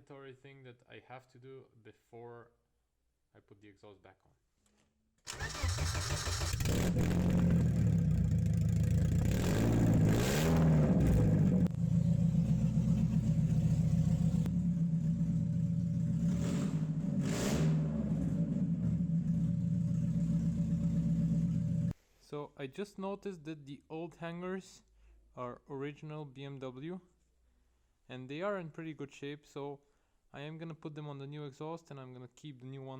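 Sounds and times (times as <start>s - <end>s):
car engine idling and revving: 5.3s - 21.9s.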